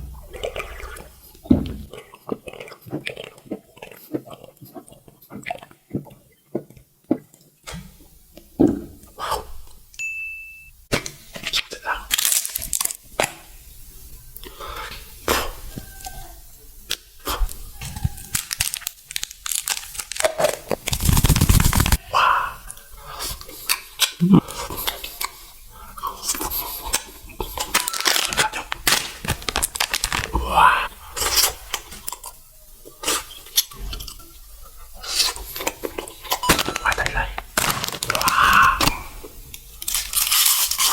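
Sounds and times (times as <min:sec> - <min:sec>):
food crunching: 0:00.0 - 0:07.6, 0:11.3 - 0:13.4, 0:16.9 - 0:22.1, 0:23.2 - 0:34.4, 0:35.0 - 0:40.9
wrappers tearing and crinkling: 0:11.3 - 0:13.1, 0:17.8 - 0:22.0, 0:26.2 - 0:32.2, 0:35.1 - 0:40.9.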